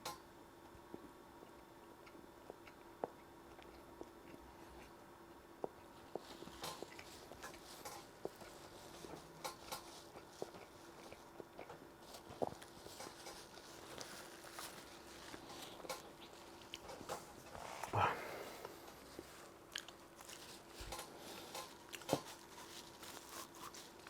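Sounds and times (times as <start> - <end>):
chewing food: 0.9 - 24.0.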